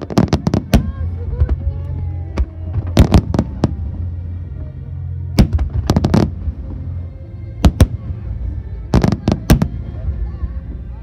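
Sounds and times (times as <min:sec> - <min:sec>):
fireworks bangs: 0:00.0 - 0:04.0.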